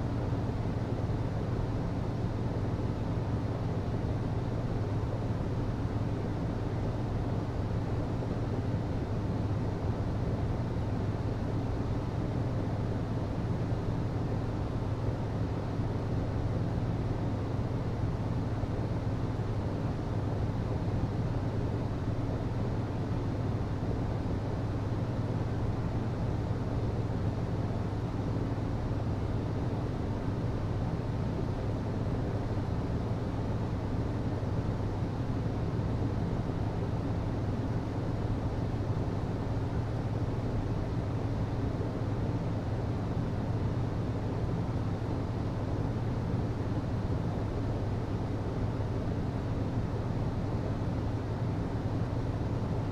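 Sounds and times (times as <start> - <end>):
hvac system humming: 0.0 - 52.9.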